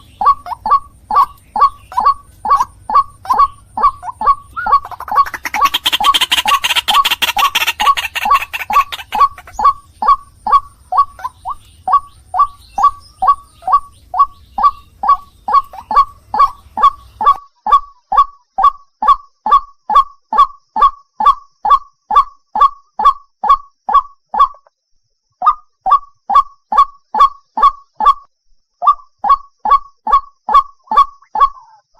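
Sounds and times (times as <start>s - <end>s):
harsh rapid chattering call: 0.0s - 17.4s
waterhen honking call: 0.0s - 17.4s.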